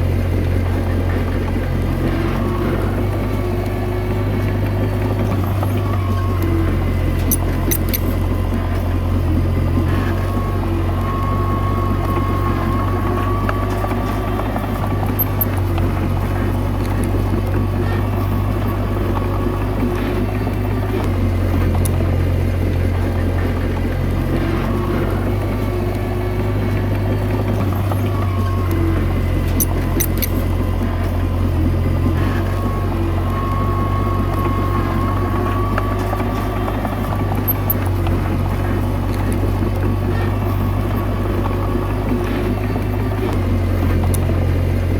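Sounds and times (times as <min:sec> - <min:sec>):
bulldozer diesel engine running: 0:00.0 - 0:44.9
thin whine: 0:00.0 - 0:44.9
sharp metallic clicks: 0:07.2 - 0:08.2, 0:13.4 - 0:15.9, 0:29.4 - 0:30.6.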